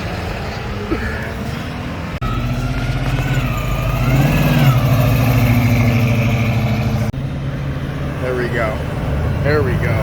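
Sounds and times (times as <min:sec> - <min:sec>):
car engine revving: 0:02.2 - 0:08.1.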